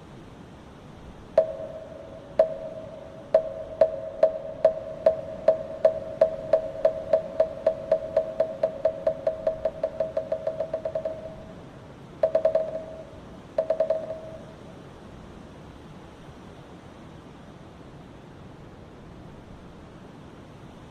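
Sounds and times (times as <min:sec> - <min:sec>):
wooden fish knocks: 0:02.4 - 0:11.4.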